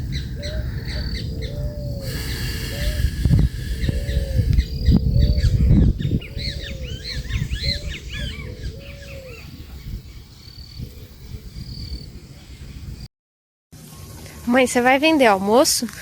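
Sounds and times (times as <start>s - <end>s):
low clear bird call: 0.2s - 11.1s
low rumbling noise: 1.2s - 7.0s
high bird chirps: 2.0s - 8.4s.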